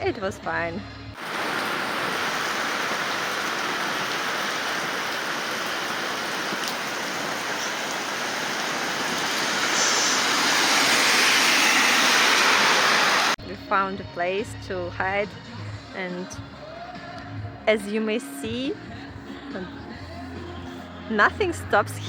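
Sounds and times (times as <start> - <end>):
heavy rain pouring: 1.2 - 13.4.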